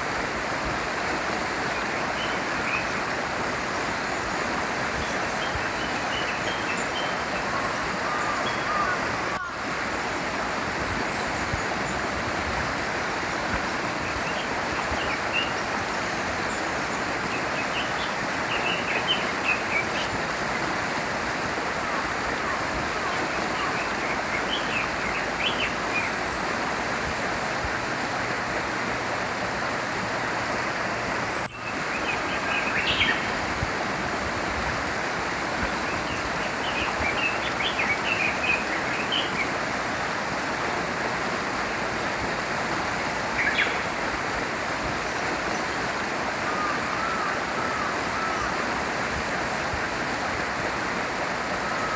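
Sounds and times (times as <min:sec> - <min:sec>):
small stream flowing: 0:00.0 - 0:51.9
birds chirping: 0:16.4 - 0:26.4.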